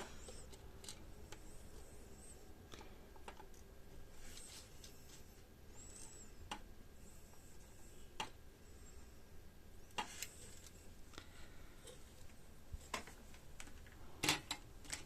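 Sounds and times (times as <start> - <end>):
faint clicks and taps of components: 2.7 - 3.7, 6.4 - 6.8, 8.2 - 8.4.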